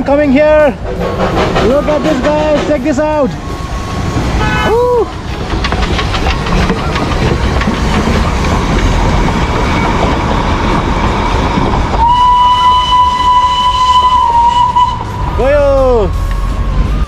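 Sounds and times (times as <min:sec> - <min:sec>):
toy train rumbling: 0:04.1 - 0:15.0
train whistle long high note: 0:12.0 - 0:16.8.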